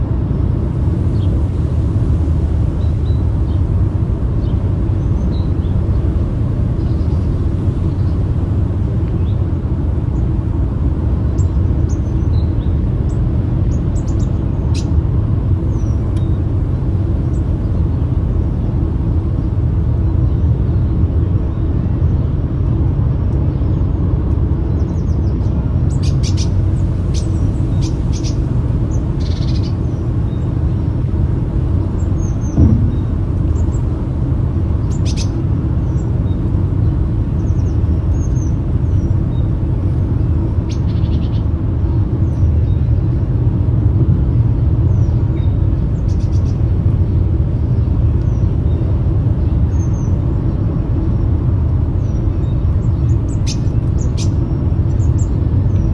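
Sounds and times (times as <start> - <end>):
low rumble: 32.2 - 36.0.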